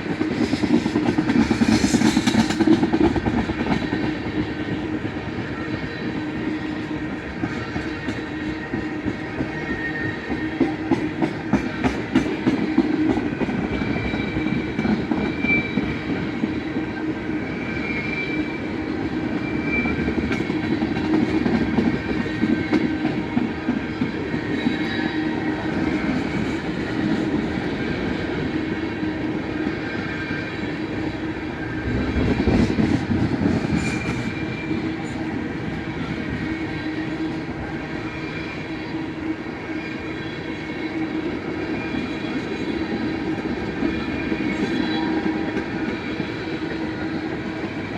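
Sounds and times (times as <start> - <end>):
train wheels rumbling on rails: 0.0 - 47.9.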